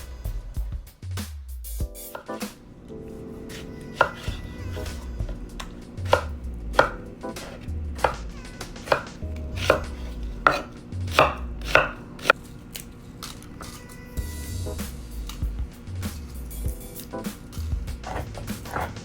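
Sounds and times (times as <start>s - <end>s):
knife chopping on cutting board: 2.1s - 12.5s, 17.3s - 19.0s.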